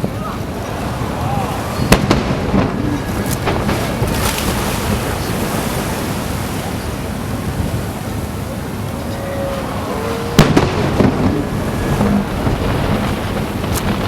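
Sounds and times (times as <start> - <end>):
fireworks bangs: 0.0 - 5.8, 10.2 - 14.0
fireworks rumble and crackle: 0.0 - 14.0.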